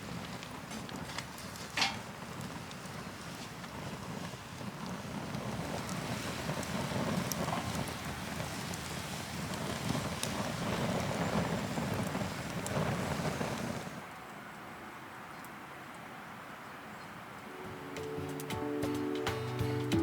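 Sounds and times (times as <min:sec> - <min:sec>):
wind buffeting microphone: 0:00.0 - 0:14.1
small sharp crackles: 0:00.0 - 0:14.3.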